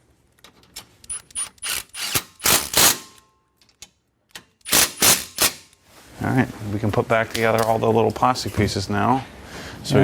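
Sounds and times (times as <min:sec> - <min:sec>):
ratchet wrench clicking: 0:01.1 - 0:03.2, 0:04.7 - 0:05.7.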